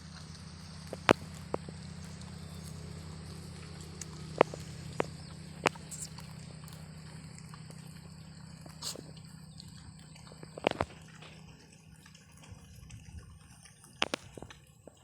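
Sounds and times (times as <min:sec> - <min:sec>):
pigs snuffling: 0:00.0 - 0:15.0
steady low hum: 0:00.0 - 0:15.0
pig snort: 0:05.6 - 0:06.8, 0:08.6 - 0:09.3.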